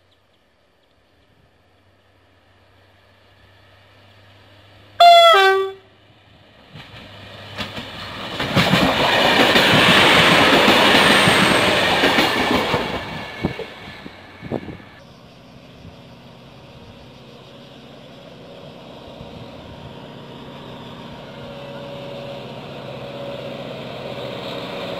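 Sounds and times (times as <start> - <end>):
train wheel noise: 0.3 - 24.9
train horn blast: 5.0 - 5.9.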